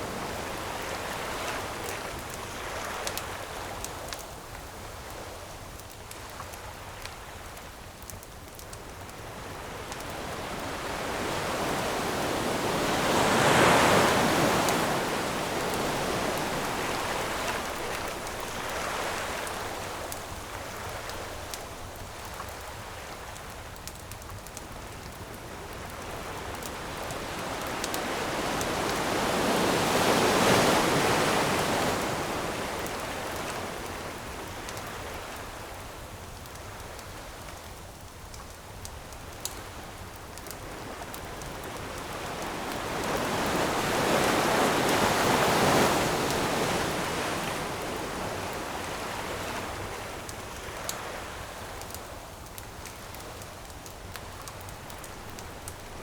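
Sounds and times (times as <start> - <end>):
ocean waves washing in: 9.2 - 21.6, 26.4 - 35.7, 40.7 - 52.2.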